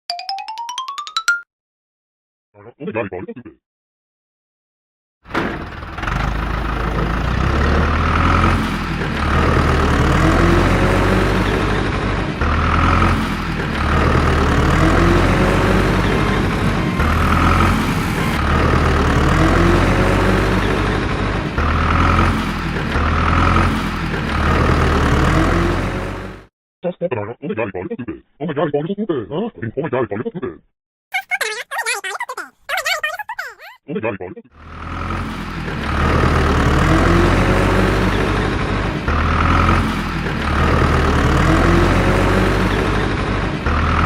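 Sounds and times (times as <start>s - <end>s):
engine-like low drone: 6.0s - 26.4s.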